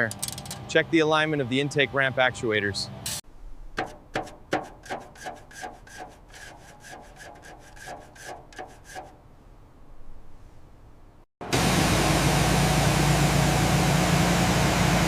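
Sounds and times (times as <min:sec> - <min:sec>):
rasping filing strokes: 0:03.8 - 0:09.2.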